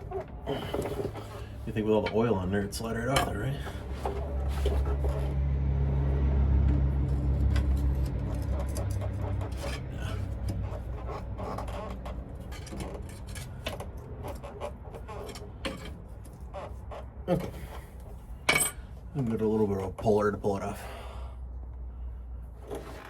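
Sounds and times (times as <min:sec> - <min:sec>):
metal scraping and clinking: 0:07.0 - 0:16.5.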